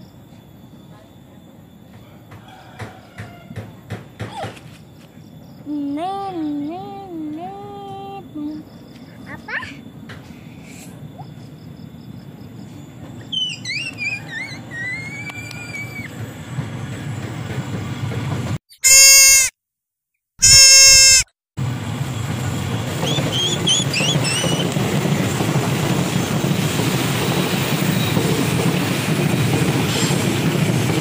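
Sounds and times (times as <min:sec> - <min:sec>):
train wheels rumbling on rails: 0:01.7 - 0:04.3, 0:12.3 - 0:18.6, 0:21.6 - 0:31.0.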